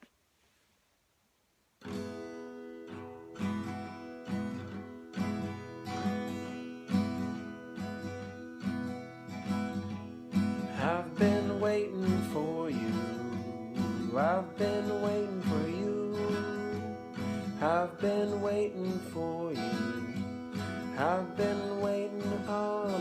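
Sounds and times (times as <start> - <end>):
acoustic guitar strumming: 1.8 - 23.0.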